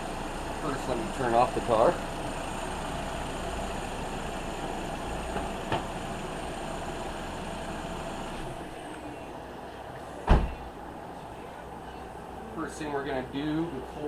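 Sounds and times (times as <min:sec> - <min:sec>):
car engine idling: 0:00.0 - 0:14.0
sharp loud thump: 0:10.2 - 0:10.7.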